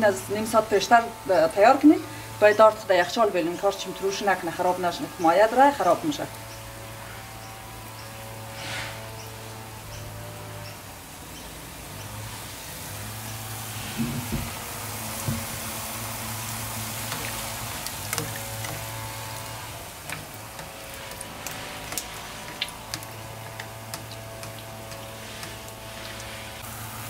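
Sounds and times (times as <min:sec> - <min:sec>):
batter sizzling in hot oil: 0:11.7 - 0:27.0.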